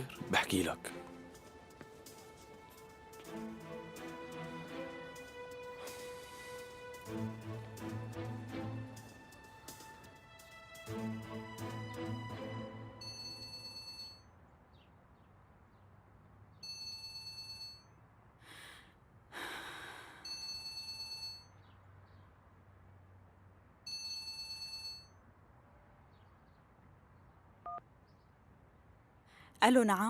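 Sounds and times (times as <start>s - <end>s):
telephone ringing: 13.0s - 14.2s, 16.6s - 17.8s, 20.3s - 21.5s, 23.9s - 25.1s
breathy sigh: 18.4s - 20.4s.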